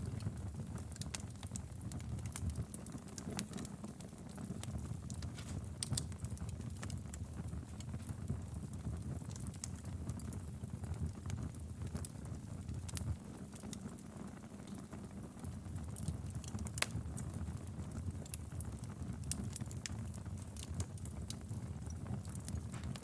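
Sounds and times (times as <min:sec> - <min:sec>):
fire crackling and popping: 0:00.0 - 0:23.0
low rumble of flames: 0:00.0 - 0:23.0.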